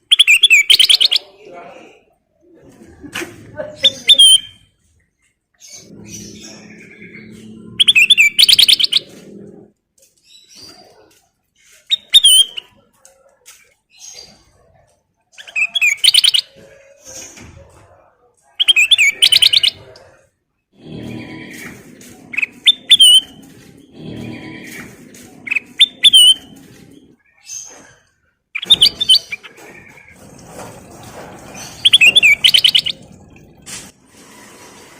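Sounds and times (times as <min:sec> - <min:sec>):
soft bird chirps: 0:00.0 - 0:01.3, 0:04.0 - 0:14.7, 0:18.6 - 0:19.9, 0:31.8 - 0:33.4
bulbul chattering song: 0:00.0 - 0:01.4, 0:05.7 - 0:09.2, 0:18.6 - 0:20.0, 0:31.8 - 0:33.3.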